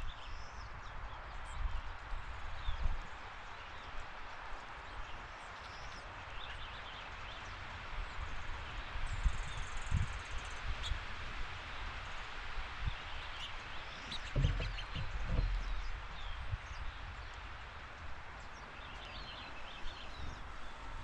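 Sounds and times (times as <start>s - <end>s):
low thumps on microphone: 14.0s - 17.2s.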